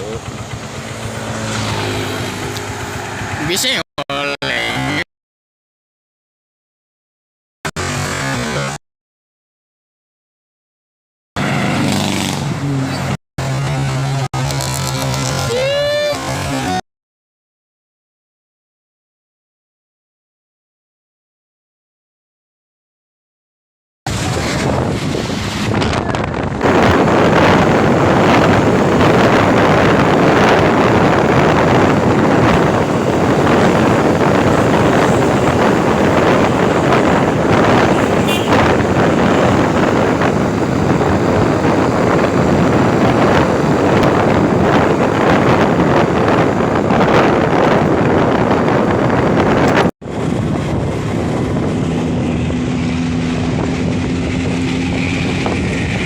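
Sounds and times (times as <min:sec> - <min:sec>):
low engine drone: 0:00.0 - 0:03.5, 0:26.6 - 0:56.0
wind and road noise: 0:00.0 - 0:05.1, 0:07.7 - 0:08.8, 0:11.4 - 0:16.8, 0:24.1 - 0:56.0
wind buffeting microphone: 0:24.1 - 0:56.0.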